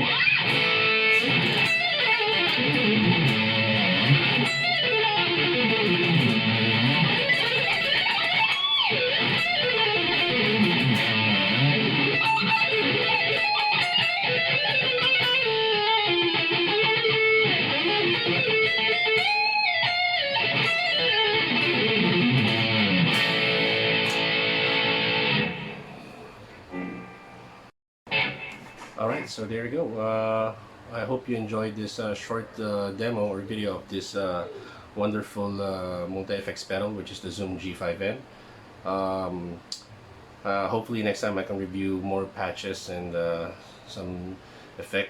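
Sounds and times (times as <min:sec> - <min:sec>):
electric guitar riffs: 0:00.0 - 0:29.3.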